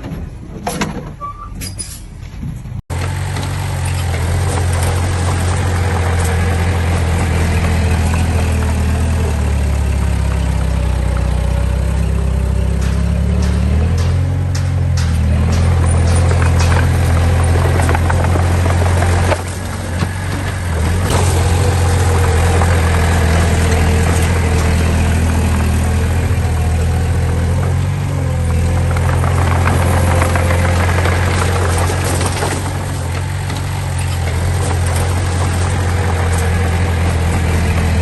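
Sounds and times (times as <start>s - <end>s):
diesel engine running: 2.9s - 38.0s
sharp knocks: 3.0s - 27.7s.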